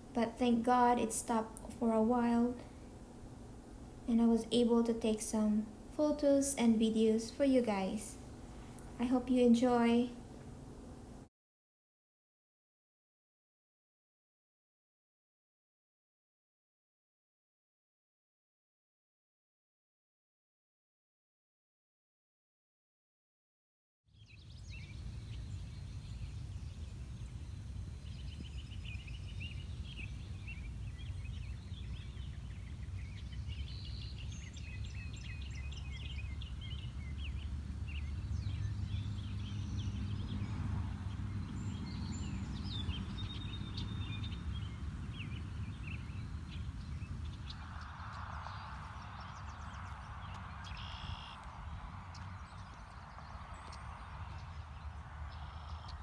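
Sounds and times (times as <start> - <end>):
small birds chirping and singing: 24.2 - 56.0
wind rumbling on microphone: 24.3 - 56.0.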